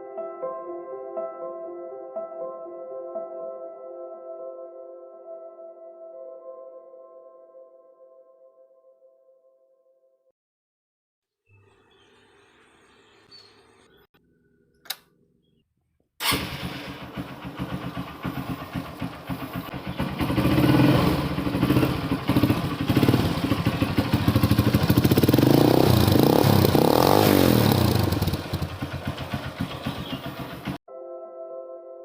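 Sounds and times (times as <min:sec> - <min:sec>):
motorcycle engine revving: 0:16.2 - 0:30.8.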